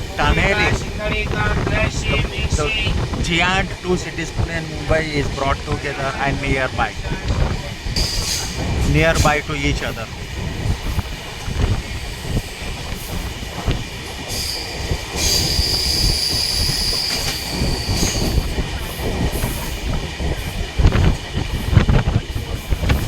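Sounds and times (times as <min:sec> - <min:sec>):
train rumbling on rails: 0:00.0 - 0:23.0
high wheel squeal: 0:14.4 - 0:18.4.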